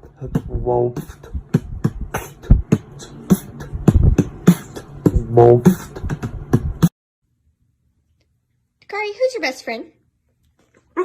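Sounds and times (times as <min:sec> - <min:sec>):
person beatboxing: 0:00.0 - 0:06.9.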